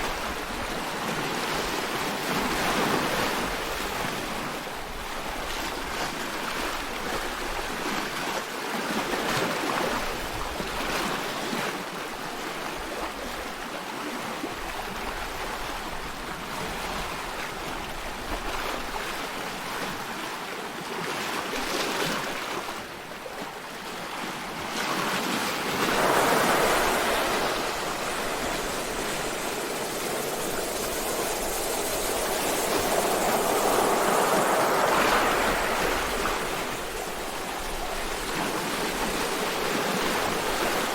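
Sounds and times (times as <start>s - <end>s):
sea waves surging: 17.8s - 40.9s.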